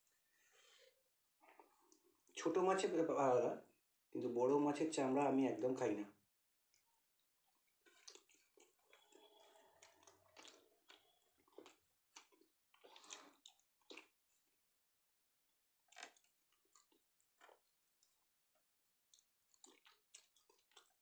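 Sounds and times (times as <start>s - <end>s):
person chewing: 7.4s - 14.4s, 15.9s - 18.3s, 19.1s - 21.0s.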